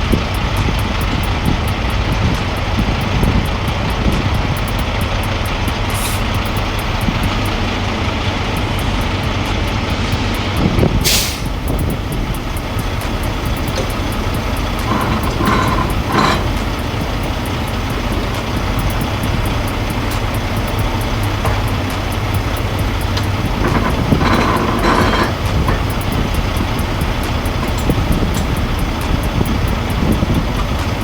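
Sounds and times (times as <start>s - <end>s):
diesel truck engine running: 0.0s - 31.0s
air brake hiss: 5.9s - 7.6s, 8.5s - 30.8s.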